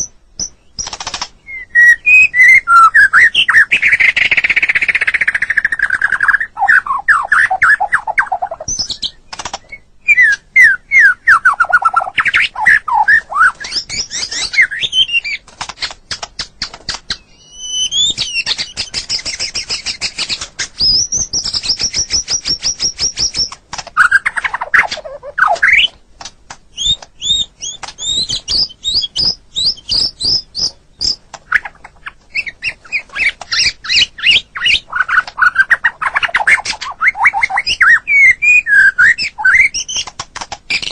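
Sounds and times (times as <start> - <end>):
bird singing varied song: 0.0 - 26.1, 26.7 - 40.9
bird high fast trill: 17.3 - 25.9.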